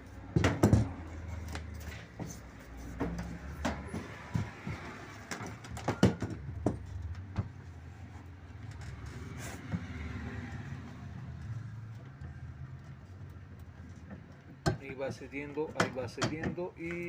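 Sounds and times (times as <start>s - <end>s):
sharp knocks and clicks: 0.3s - 7.6s, 11.3s - 17.0s.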